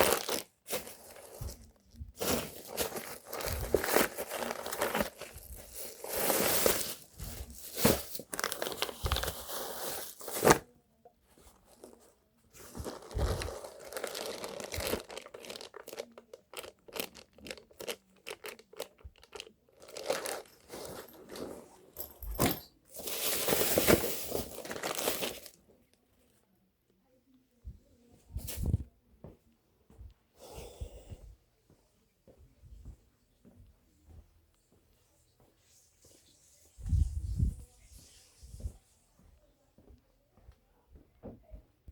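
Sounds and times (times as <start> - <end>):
rustling and crinkling: 0.0 - 25.9.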